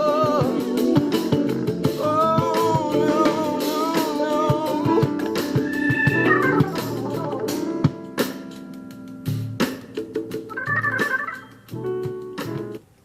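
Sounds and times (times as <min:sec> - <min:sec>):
man singing with vibrato: 0:00.0 - 0:07.8
organ chord: 0:00.0 - 0:12.8
funk band music: 0:00.0 - 0:13.0.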